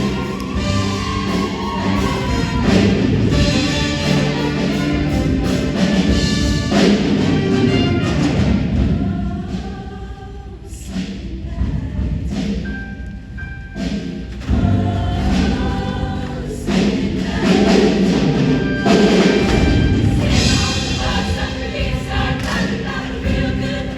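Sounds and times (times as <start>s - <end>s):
instrumental accompaniment: 0.0s - 8.8s, 12.7s - 23.9s
heavy drum hits: 0.0s - 9.7s, 13.9s - 23.9s
choir singing: 0.0s - 12.6s, 14.4s - 23.9s.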